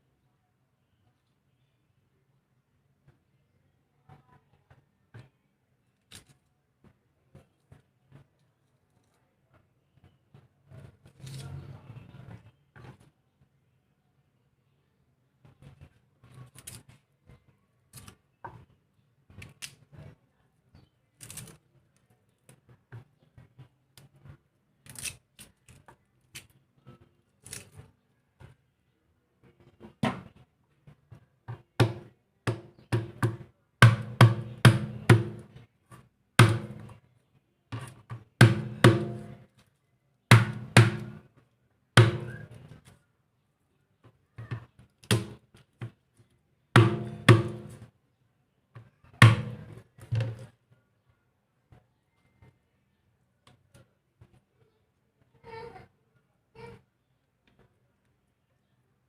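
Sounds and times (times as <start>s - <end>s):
heavy thunks with ringing: 46.8s - 47.7s.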